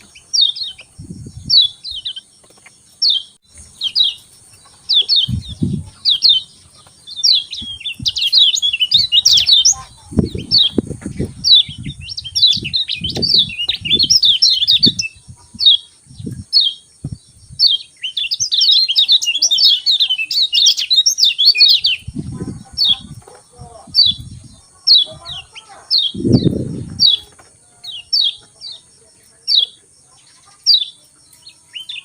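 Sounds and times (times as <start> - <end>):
songbird chirping rapidly: 0.0 - 32.0
dull low thumps: 5.2 - 6.0, 10.0 - 14.2, 14.8 - 17.7, 26.1 - 27.3.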